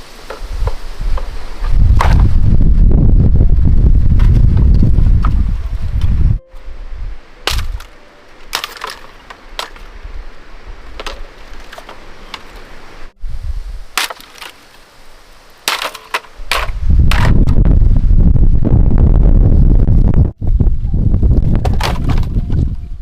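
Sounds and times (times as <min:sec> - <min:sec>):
wind buffeting microphone: 0:00.4 - 0:07.8, 0:13.1 - 0:14.0, 0:16.3 - 0:23.0.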